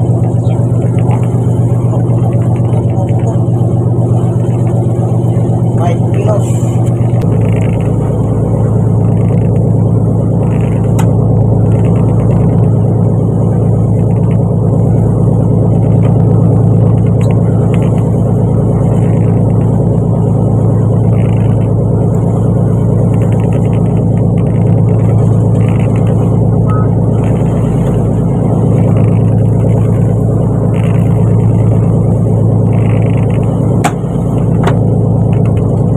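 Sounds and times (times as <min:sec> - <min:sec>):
boat engine droning: 0:00.0 - 0:35.9.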